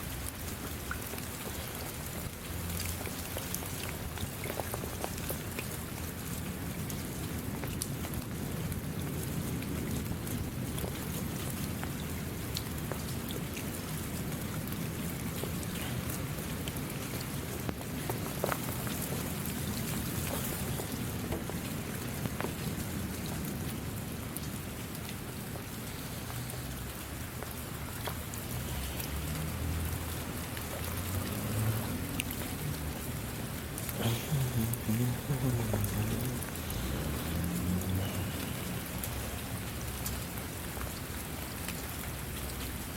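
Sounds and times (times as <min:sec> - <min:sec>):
raindrops tapping: 0:00.0 - 0:42.9
steady rain: 0:00.0 - 0:42.9.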